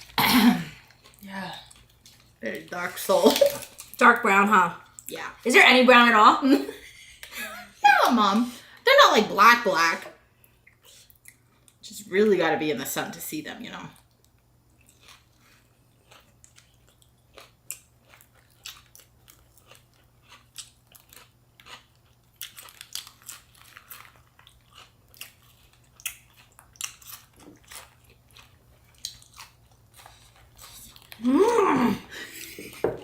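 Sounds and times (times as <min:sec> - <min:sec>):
crisp chewing crunches: 0:14.8 - 0:31.3.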